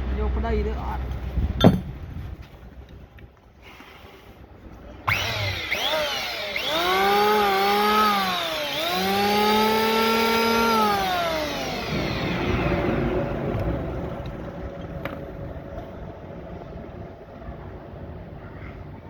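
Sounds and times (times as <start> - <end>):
small engine running: 5.0 - 18.4.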